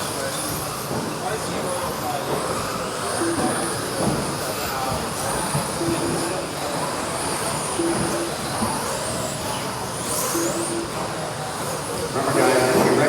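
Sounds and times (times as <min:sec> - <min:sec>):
rc car motor whine: 0:00.0 - 0:13.0
short beeps: 0:03.2 - 0:03.8, 0:05.7 - 0:06.4, 0:07.7 - 0:08.6, 0:10.2 - 0:11.3.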